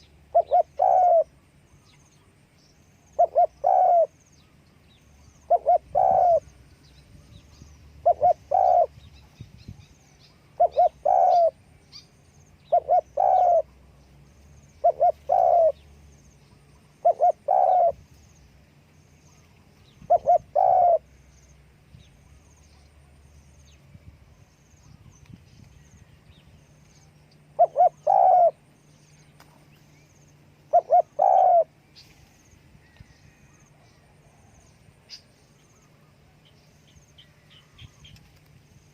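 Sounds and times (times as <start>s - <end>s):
dove cooing: 0.0s - 1.4s, 3.1s - 4.2s, 5.4s - 6.6s, 8.0s - 9.1s, 10.4s - 11.6s, 12.6s - 13.8s, 14.8s - 15.9s, 16.9s - 18.0s, 19.9s - 21.2s, 27.5s - 28.7s, 30.6s - 31.8s
small birds chirping: 0.0s - 38.9s.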